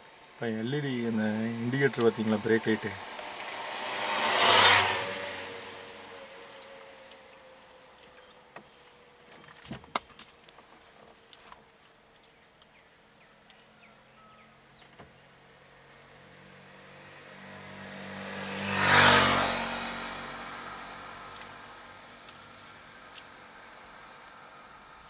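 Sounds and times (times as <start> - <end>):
faint road background: 0.0 - 25.0
vehicle passing close by: 0.8 - 7.7, 15.4 - 25.0.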